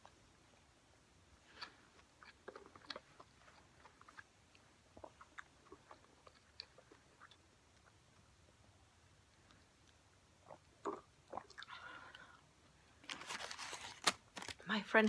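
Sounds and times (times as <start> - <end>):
faint mouth chewing: 1.5 - 8.3, 9.3 - 12.4.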